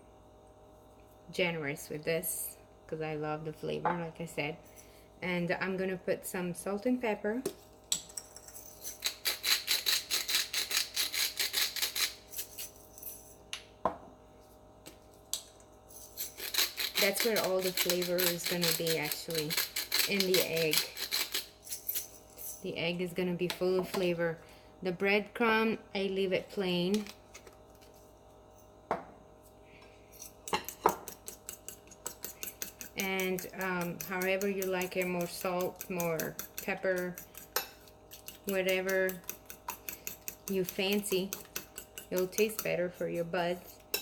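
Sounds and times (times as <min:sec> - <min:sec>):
seasoning shaken over bowl: 0:15.9 - 0:22.6.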